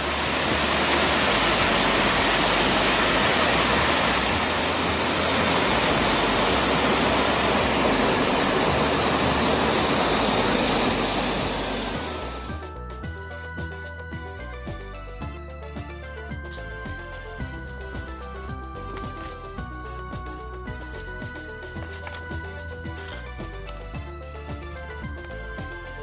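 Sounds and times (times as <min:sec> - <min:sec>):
steady rushing noise: 0:00.0 - 0:12.7.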